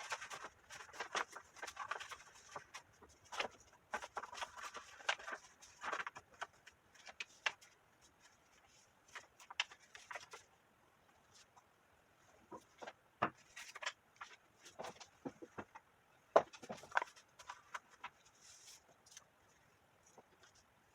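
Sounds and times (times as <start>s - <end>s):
cardstock rustling and creasing: 0.0s - 10.5s, 16.6s - 19.2s.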